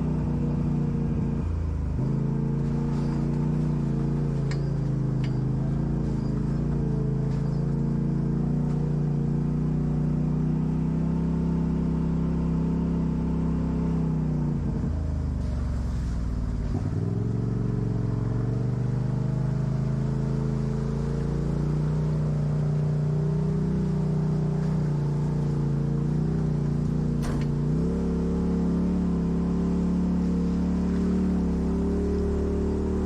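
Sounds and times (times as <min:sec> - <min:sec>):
vehicle engine running: 0:00.0 - 0:33.0.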